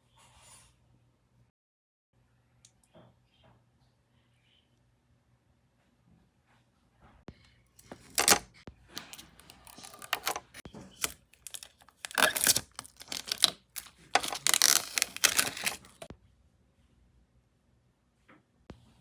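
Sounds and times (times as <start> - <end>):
box and packaging being opened: 7.8 - 16.1.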